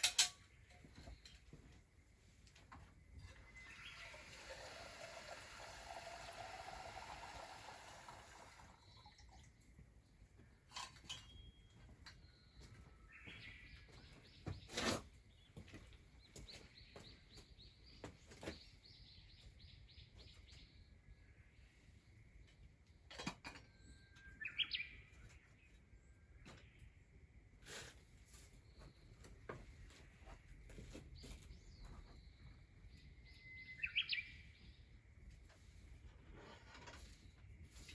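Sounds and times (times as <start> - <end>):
bird singing faintly: 3.1 - 4.3, 10.4 - 14.8, 31.2 - 34.9.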